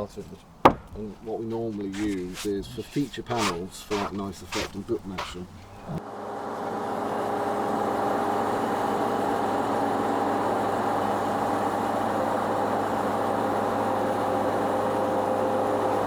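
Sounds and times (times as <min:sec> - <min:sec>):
band sawmill droning: 0:01.0 - 0:06.0.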